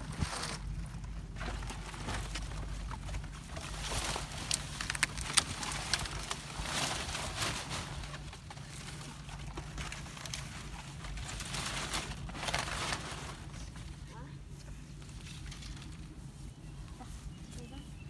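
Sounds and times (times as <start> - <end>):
sharp snaps and crackles: 0.0 - 14.0
palm fronds rustling and scraping: 0.0 - 18.0.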